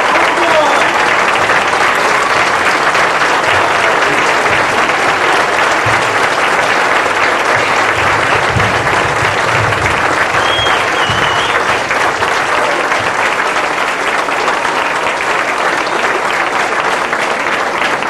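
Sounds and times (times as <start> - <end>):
audience applauding: 0.0 - 18.0
low thumps: 3.0 - 12.2.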